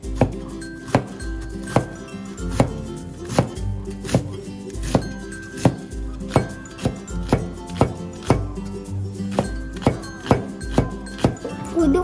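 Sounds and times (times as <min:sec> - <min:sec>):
background music: 0:00.0 - 0:12.0
knife chopping on cutting board: 0:00.2 - 0:08.6, 0:09.3 - 0:11.5.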